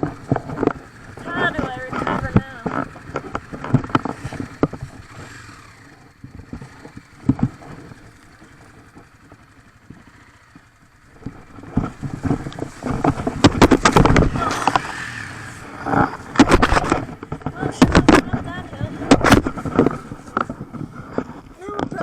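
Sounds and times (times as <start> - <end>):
dirt bike engine: 0.0 - 22.0
sharp knocks: 11.7 - 14.9.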